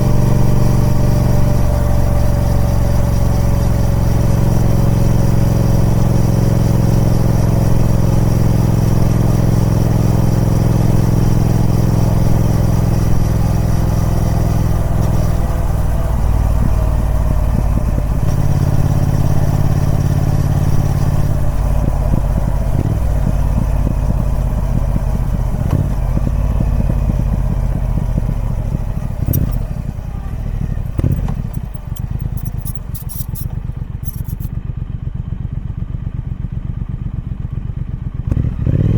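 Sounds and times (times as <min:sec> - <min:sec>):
motorcycle engine running: 0:00.0 - 0:38.9
sharp clicks: 0:31.0 - 0:34.5.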